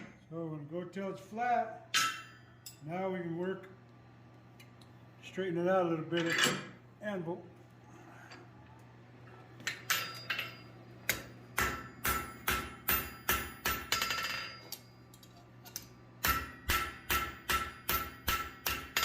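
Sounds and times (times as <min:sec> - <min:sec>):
hammer striking steel on anvil: 0:01.9 - 0:02.8, 0:09.7 - 0:14.9, 0:16.2 - 0:19.0.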